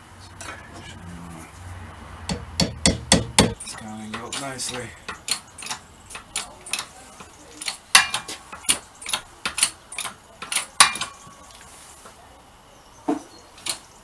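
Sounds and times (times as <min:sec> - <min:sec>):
hammer tapping on metal: 0:02.2 - 0:11.4.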